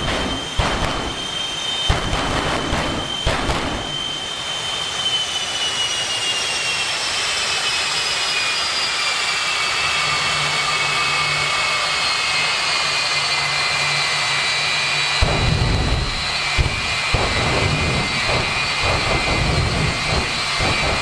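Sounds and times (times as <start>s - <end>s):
jet engine roaring with turbine whine: 0.0s - 21.0s
low rumble: 15.2s - 21.0s.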